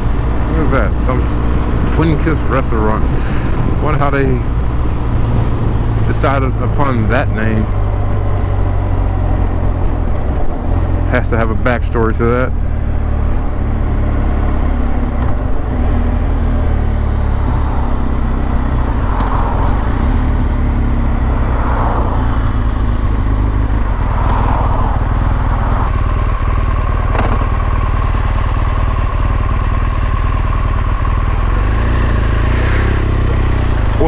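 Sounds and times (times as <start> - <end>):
steady whine: 0.0 - 15.7
motorcycle engine running: 0.0 - 34.0.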